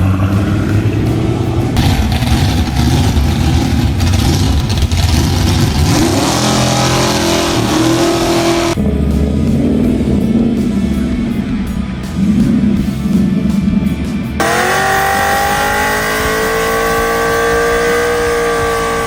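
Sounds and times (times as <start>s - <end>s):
car engine revving: 0.0s - 10.5s, 14.4s - 19.0s.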